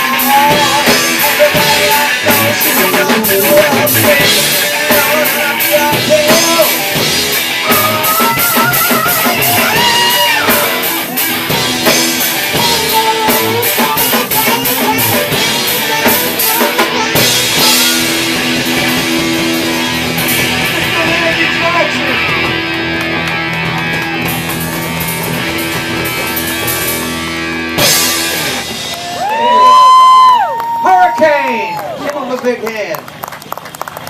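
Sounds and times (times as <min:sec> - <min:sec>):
rock band playing: 0:00.0 - 0:34.0.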